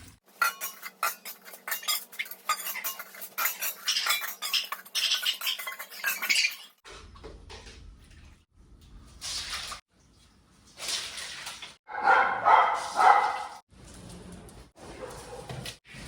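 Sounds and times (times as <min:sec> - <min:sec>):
metal dishes clattering: 0:00.0 - 0:06.8
dogs barking and whining: 0:11.9 - 0:13.6.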